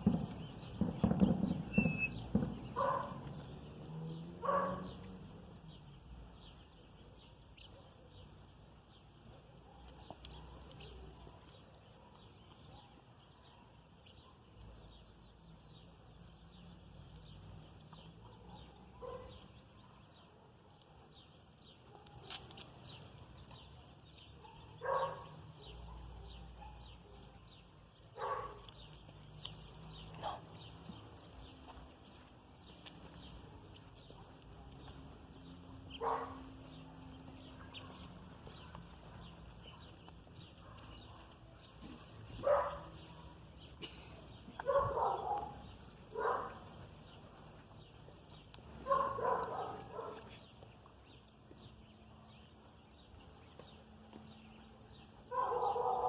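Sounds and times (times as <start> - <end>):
small birds chirping faintly: 0.0 - 56.0
dog barking: 2.8 - 3.3, 4.4 - 5.0, 18.2 - 20.8, 24.4 - 27.4, 28.1 - 28.8, 30.2 - 30.5, 36.0 - 38.8, 42.4 - 43.3, 44.6 - 46.7, 48.8 - 50.4, 55.3 - 56.0.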